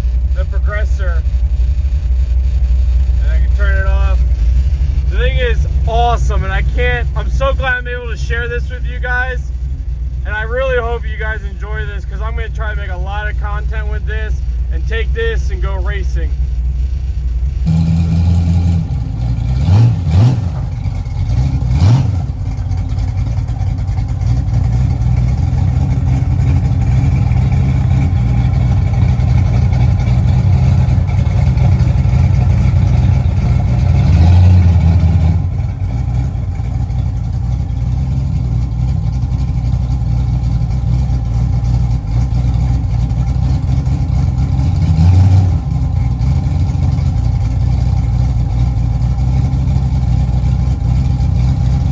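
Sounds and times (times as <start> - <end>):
engine running and revving: 15.8 - 51.9.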